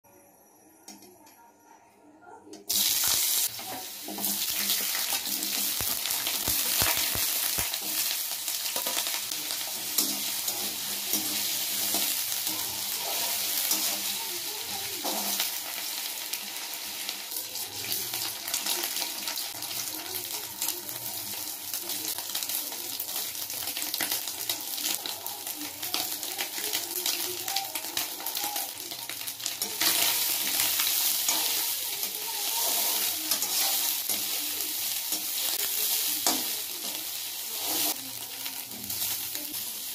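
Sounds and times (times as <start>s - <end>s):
potato sizzling in hot oil: 2.7s - 39.9s
steel spatula scraping a pan: 29.6s - 36.4s.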